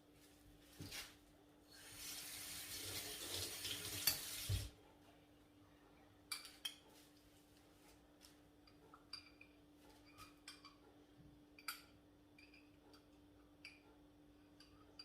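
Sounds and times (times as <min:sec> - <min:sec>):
water pouring: 0:01.8 - 0:04.7.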